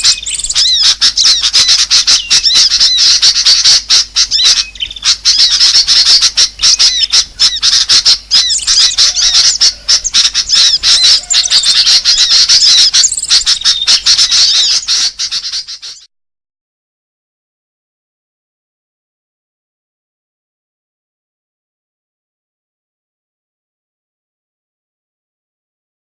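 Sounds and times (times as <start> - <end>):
small birds chirping and trilling: 0.0 - 16.1.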